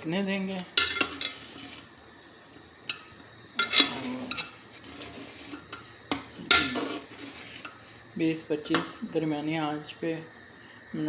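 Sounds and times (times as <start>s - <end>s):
metal kitchenware clanking on pot: 0.8s - 1.5s, 3.6s - 4.6s, 5.5s - 7.0s.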